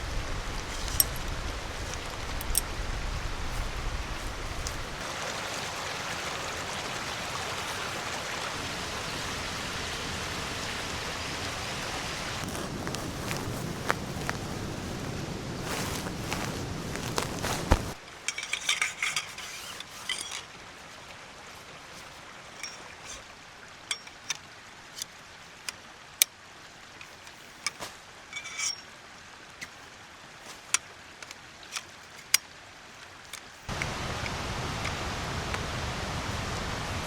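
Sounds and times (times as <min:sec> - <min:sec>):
light metallic clinks: 0:00.6 - 0:02.7, 0:18.0 - 0:20.5, 0:22.0 - 0:24.4, 0:27.0 - 0:28.9.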